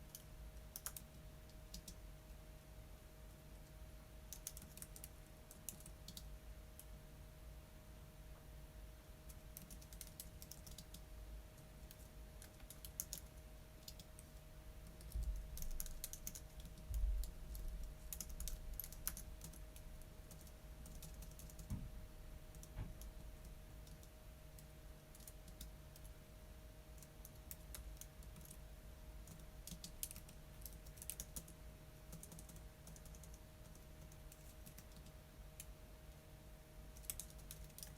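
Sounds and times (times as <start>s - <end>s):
keyboard typing clicks: 0.1s - 2.0s, 4.3s - 6.9s, 9.3s - 21.8s, 22.5s - 23.2s, 23.8s - 26.1s, 27.0s - 28.6s, 29.2s - 35.7s, 37.0s - 37.9s.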